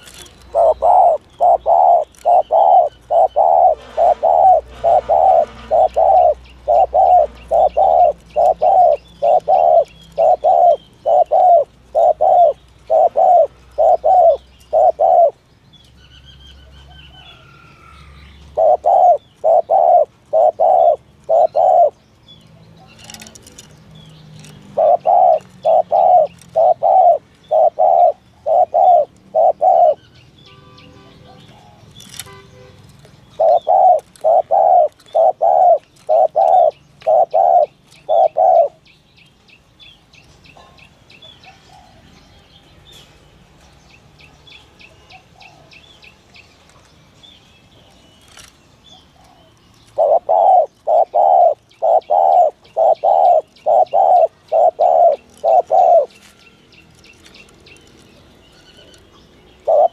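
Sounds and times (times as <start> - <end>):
dove cooing: 0.0 - 15.4, 16.7 - 22.0, 22.8 - 23.7, 24.4 - 30.1, 33.3 - 38.8, 48.3 - 56.3, 59.6 - 59.9.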